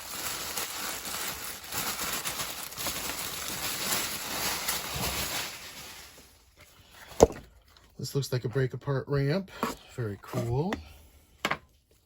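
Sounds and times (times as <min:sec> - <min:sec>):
packing paper rustling: 0:00.0 - 0:06.6.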